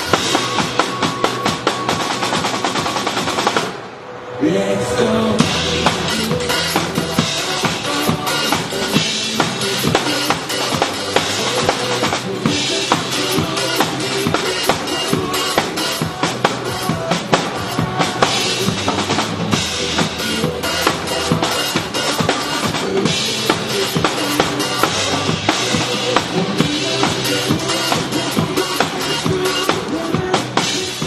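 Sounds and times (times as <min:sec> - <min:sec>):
drum kit playing: 0:00.0 - 0:03.8, 0:05.4 - 0:31.0
pop backing track: 0:05.1 - 0:31.0.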